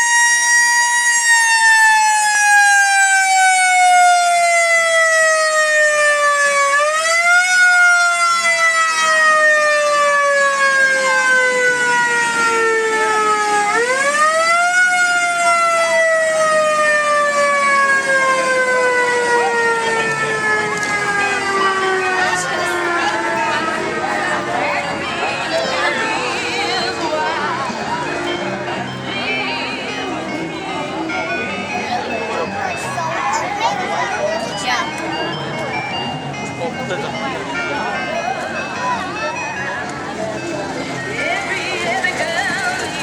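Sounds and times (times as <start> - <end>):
siren wailing: 0.0 - 27.8.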